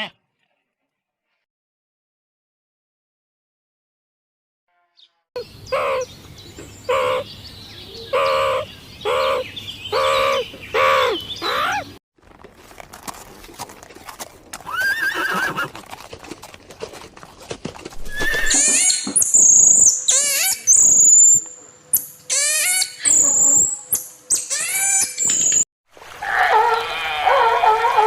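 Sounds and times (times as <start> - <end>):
animal calling: 5.4 - 6.1, 6.9 - 7.3, 7.9 - 12.0, 18.0 - 21.4, 22.3 - 25.6, 26.2 - 28.0
high-pitched chirping calls: 18.2 - 25.7.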